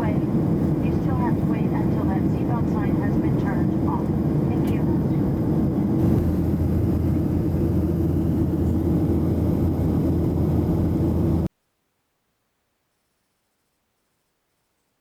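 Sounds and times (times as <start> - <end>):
airplane cabin noise: 0.0 - 11.5.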